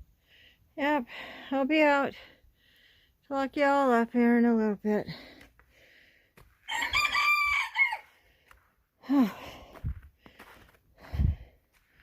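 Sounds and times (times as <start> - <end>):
rooster crowing: 6.7 - 8.1.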